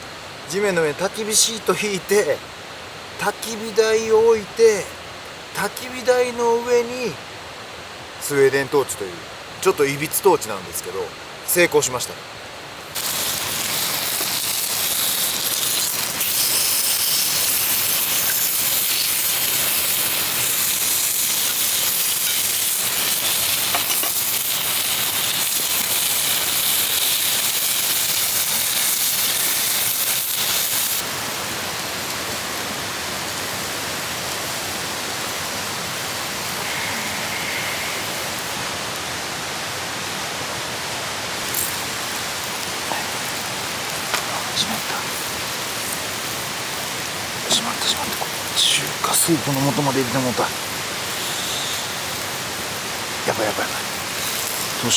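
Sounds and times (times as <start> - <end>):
food sizzling in frying pan: 12.8 - 39.0, 41.1 - 54.9.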